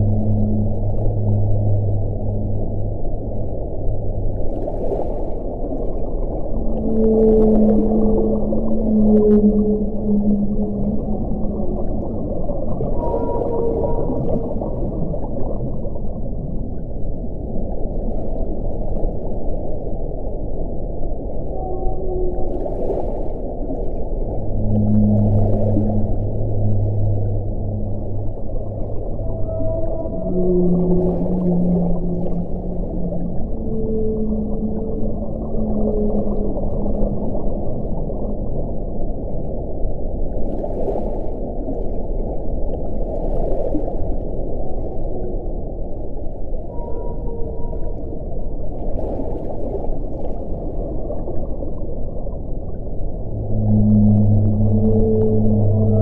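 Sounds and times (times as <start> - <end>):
faint howling wind: 0.0 - 56.0.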